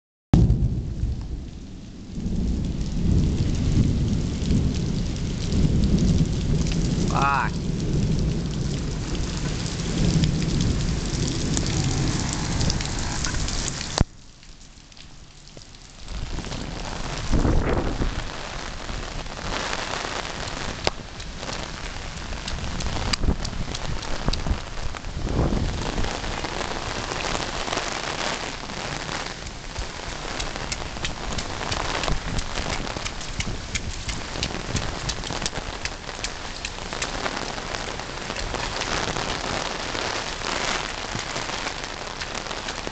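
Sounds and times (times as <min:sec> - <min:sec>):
low rumbles: 0:00.4 - 0:14.2
heavy rain splashing: 0:00.4 - 0:42.9.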